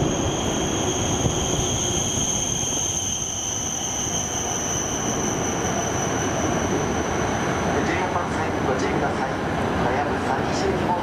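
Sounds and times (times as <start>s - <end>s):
high whining tones: 0.0s - 8.1s.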